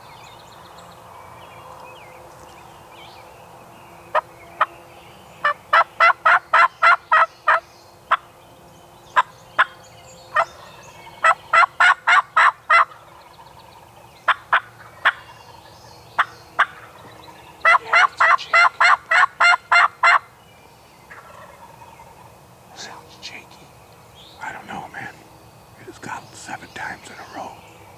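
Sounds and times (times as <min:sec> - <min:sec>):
turkey yelping: 0:17.6 - 0:20.3.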